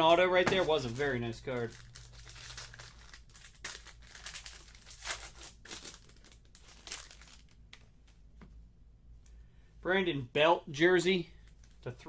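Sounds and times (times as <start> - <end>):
packaging crinkling and tearing: 0.4 - 7.9.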